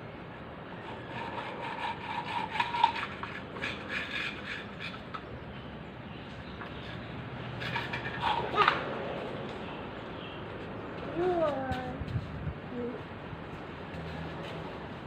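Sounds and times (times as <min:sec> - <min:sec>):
scraping and rubbing: 0:00.9 - 0:05.3, 0:06.8 - 0:08.9.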